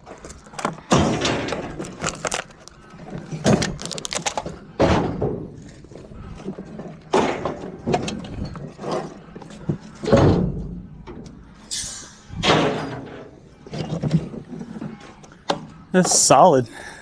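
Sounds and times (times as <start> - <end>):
debris thudding and clattering: 0.0 - 11.6, 12.3 - 15.8
high scrape: 11.7 - 12.4.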